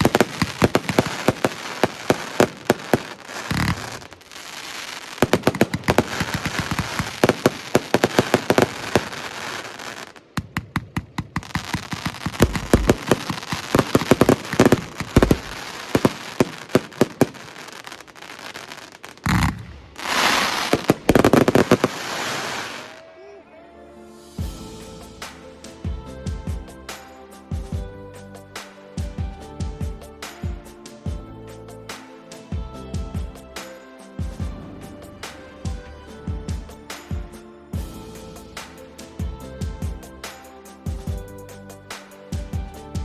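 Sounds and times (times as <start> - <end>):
firework battery firing: 0.0 - 23.0.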